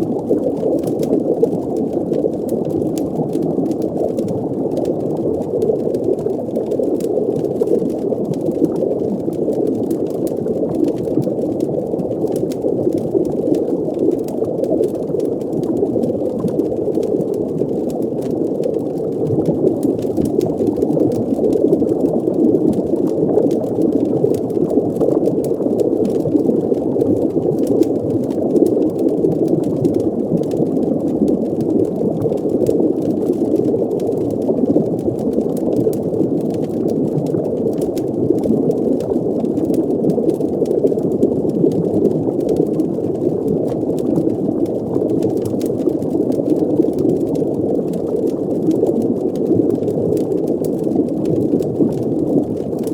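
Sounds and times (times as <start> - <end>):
underwater bubbling water wash: 0.0 - 52.9.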